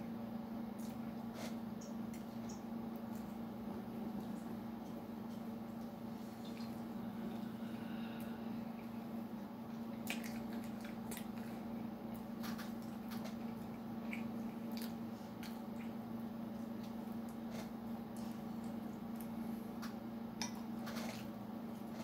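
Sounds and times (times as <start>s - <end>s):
steady low hum: 0.0s - 22.0s
chewing with wet smacking: 0.7s - 3.4s, 9.7s - 22.0s.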